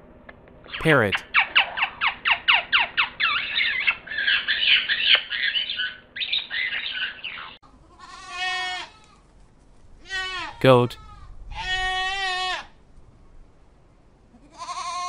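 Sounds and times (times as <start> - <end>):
macaw squawking: 1.2 - 7.6
goat bleat: 7.8 - 9.2, 10.0 - 12.7, 14.3 - 15.0.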